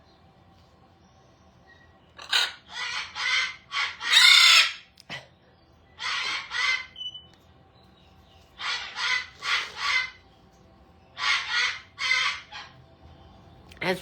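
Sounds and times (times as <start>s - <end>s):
parrot screeching: 2.2s - 4.9s, 6.0s - 7.0s, 8.6s - 10.2s, 11.2s - 12.8s.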